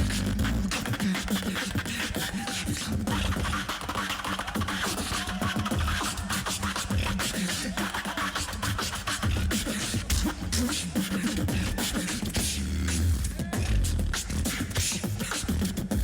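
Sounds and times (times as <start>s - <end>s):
people beatboxing: 0.0s - 16.0s
hummed bass lines: 12.4s - 14.5s.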